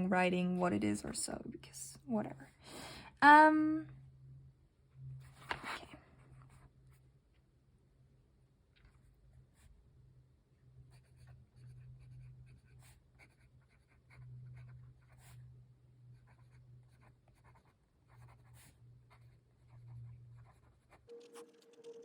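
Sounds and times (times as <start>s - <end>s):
pen nib scratching on paper: 10.9s - 15.4s, 16.1s - 22.0s
steady ringing tone: 21.1s - 22.0s.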